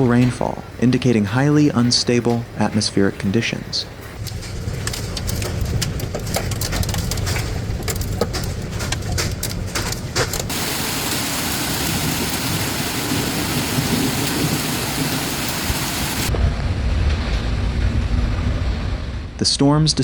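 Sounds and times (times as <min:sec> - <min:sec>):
raindrops clicking on surface: 0:01.8 - 0:16.3
thunder rumbling: 0:01.9 - 0:19.4
heavy rain hissing: 0:10.5 - 0:16.3.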